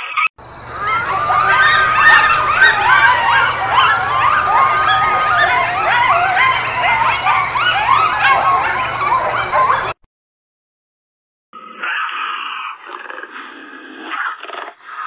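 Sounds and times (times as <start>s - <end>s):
chorus of animal whines and yelps: 0.4s - 10.0s, 11.7s - 15.0s
long held animal call: 0.4s - 10.0s.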